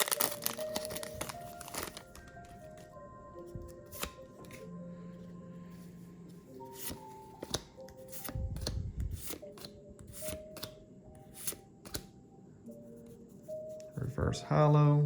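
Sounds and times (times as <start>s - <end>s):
card rustling: 0.0s - 4.8s, 6.5s - 10.8s
faint background music: 0.0s - 15.0s
trading cards snapping: 3.8s - 4.6s, 6.8s - 10.8s, 11.4s - 12.1s.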